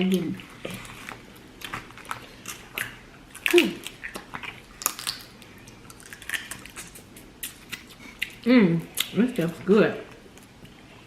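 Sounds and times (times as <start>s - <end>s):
chewing: 0.1s - 11.0s
crab shells cracking: 1.2s - 8.4s.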